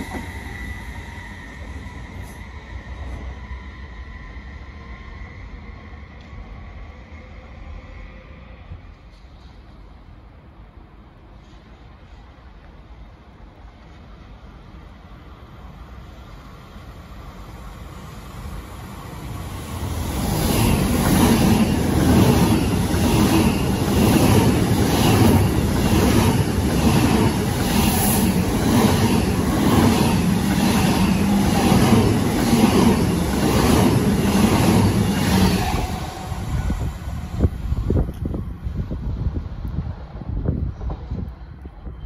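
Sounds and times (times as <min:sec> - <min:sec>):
train wheels clattering on rails: 0:20.0 - 0:37.0.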